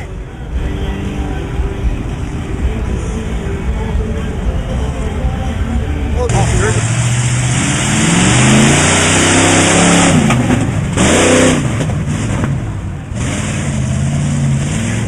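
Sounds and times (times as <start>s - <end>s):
loud rushing noise: 5.6s - 15.0s
truck engine revving hard: 6.3s - 15.0s.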